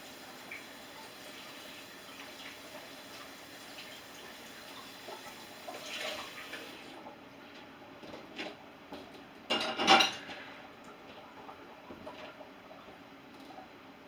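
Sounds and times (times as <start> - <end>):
dishes clinking: 9.5 - 10.4.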